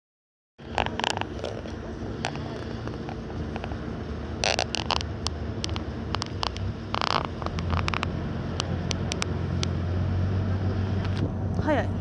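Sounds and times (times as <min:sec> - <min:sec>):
sharp clicks: 0:00.6 - 0:03.8, 0:04.4 - 0:09.8
boat engine humming: 0:00.6 - 0:12.0.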